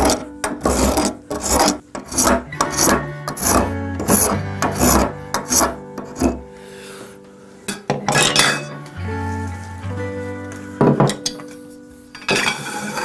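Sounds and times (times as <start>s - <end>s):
rasp strokes: 0.0s - 6.4s
background music: 0.0s - 13.0s.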